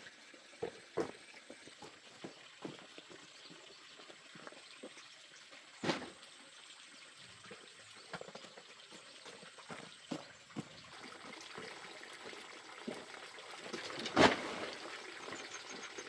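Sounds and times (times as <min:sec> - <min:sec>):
faint water sounds: 0:00.0 - 0:16.0
small knocks or splashes: 0:12.8 - 0:14.8.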